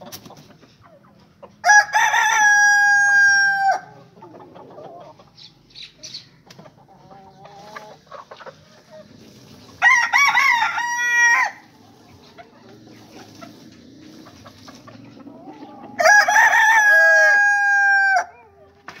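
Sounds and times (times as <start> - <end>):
rooster crowing: 1.6 - 4.0, 9.8 - 11.7, 15.9 - 18.4.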